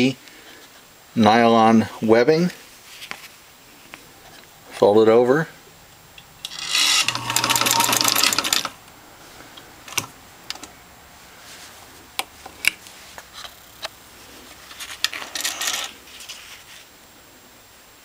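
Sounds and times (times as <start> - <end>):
sewing machine stitching: 6.4 - 8.8.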